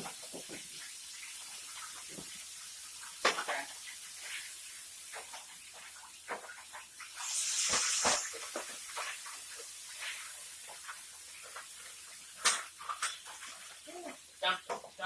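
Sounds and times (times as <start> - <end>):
faint steady hiss: 0.0 - 15.0
loud hiss: 7.2 - 8.4.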